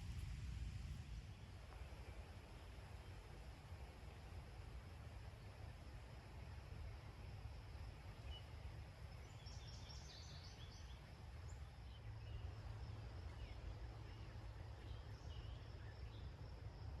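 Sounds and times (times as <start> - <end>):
small birds chirping: 8.2 - 16.3.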